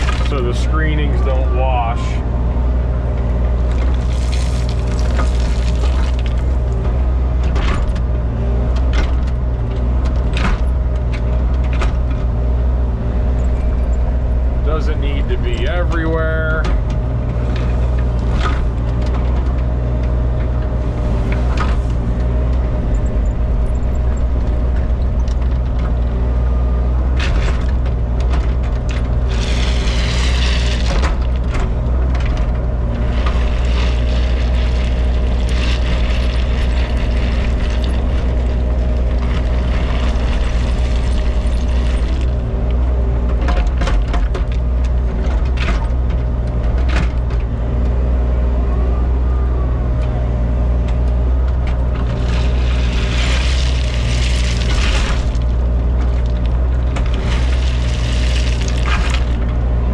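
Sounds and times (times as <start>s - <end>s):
scraping and clatter of stone: 0.0s - 0.6s, 3.6s - 8.1s, 27.1s - 46.1s, 51.6s - 59.6s
diesel engine running: 0.0s - 59.9s.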